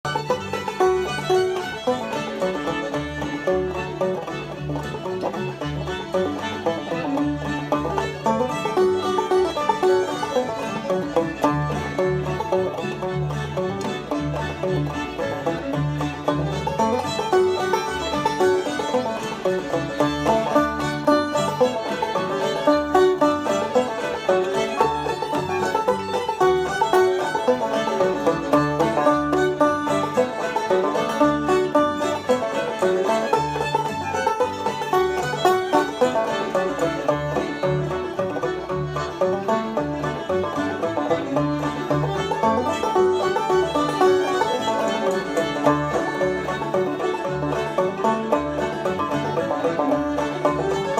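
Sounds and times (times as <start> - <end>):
fiddle: 0.0 - 50.9
plucked banjo: 0.0 - 50.9.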